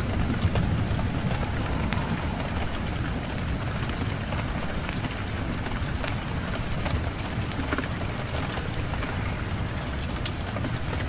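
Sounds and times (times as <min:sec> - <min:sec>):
fireplace fire crackling: 0:00.0 - 0:11.0
low rumble of wind: 0:00.0 - 0:11.0.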